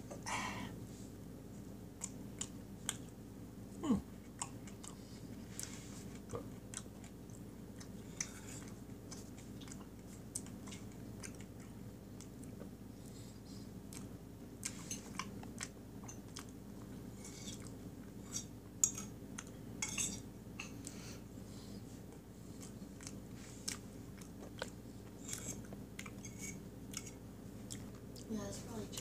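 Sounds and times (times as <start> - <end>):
chewing with wet mouth smacks: 2.0 - 3.2, 4.2 - 13.2, 13.8 - 19.6, 22.0 - 28.3.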